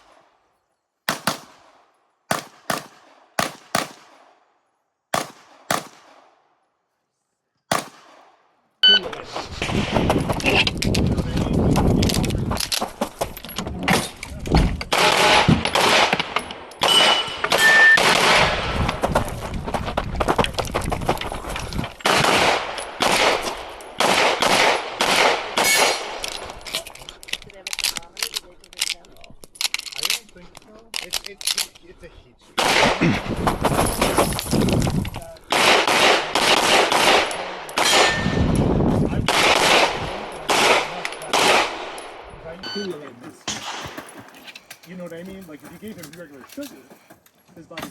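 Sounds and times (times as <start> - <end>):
pistol shots: 1.1 - 4.4, 5.1 - 6.4, 7.7 - 8.4, 14.9 - 18.7, 22.0 - 26.2, 32.6 - 33.0, 35.5 - 38.4, 39.3 - 42.2.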